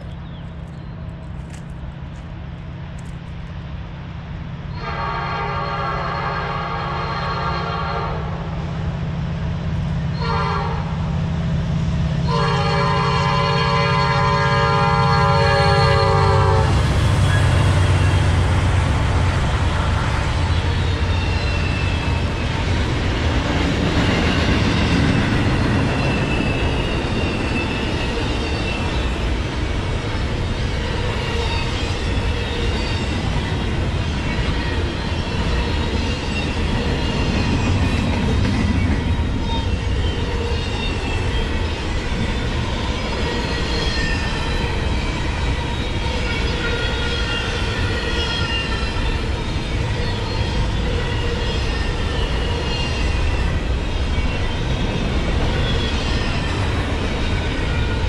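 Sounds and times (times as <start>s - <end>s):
locomotive horn blasts: 4.8s - 8.3s, 10.2s - 10.9s, 12.2s - 16.8s.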